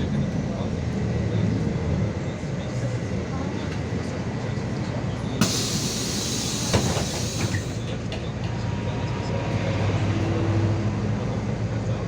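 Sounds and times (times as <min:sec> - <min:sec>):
bus engine drone: 0:00.0 - 0:12.0
loud air hiss: 0:05.4 - 0:07.8.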